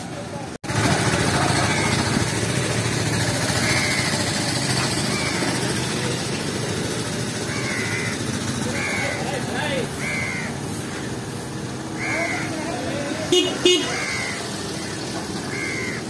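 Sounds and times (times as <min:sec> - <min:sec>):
motorcycle engine idling: 0:00.1 - 0:16.0
crows cawing: 0:03.5 - 0:05.7, 0:07.4 - 0:11.1, 0:11.9 - 0:12.9, 0:13.8 - 0:16.0.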